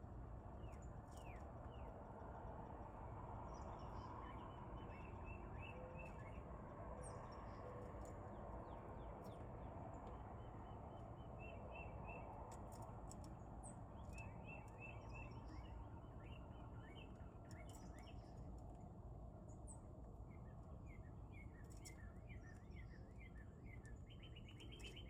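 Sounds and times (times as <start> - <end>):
small birds chirping: 19.5 - 25.0.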